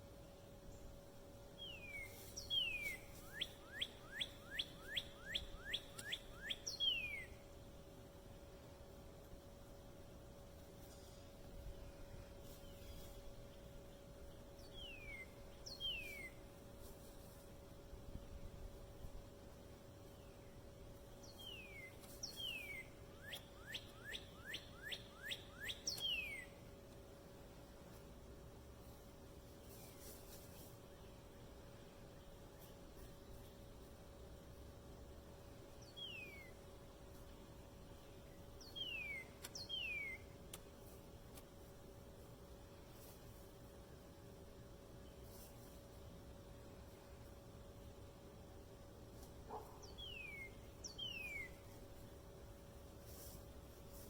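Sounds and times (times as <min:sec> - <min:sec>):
songbird singing: 0:00.0 - 0:08.0, 0:10.9 - 0:27.1, 0:29.6 - 0:41.0, 0:48.4 - 0:54.0
faint steady hum: 0:00.0 - 0:54.0
songbird whistling: 0:01.6 - 0:07.4, 0:14.7 - 0:16.4, 0:21.2 - 0:26.6, 0:35.8 - 0:36.6, 0:38.6 - 0:40.4, 0:49.8 - 0:51.7.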